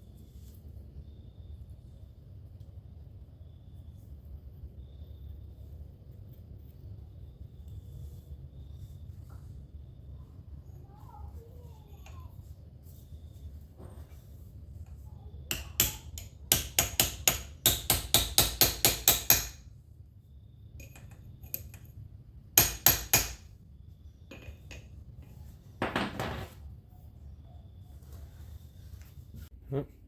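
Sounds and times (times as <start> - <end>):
rustling noise: 10.9 - 15.0, 27.8 - 29.6
hammer striking metal: 15.5 - 19.6, 22.6 - 23.5.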